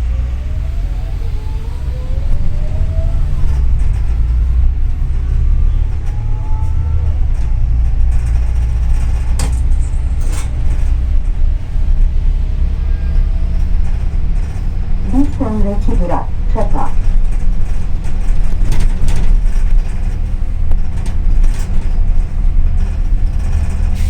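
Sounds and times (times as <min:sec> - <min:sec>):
bus engine and road drone: 0:00.0 - 0:24.0.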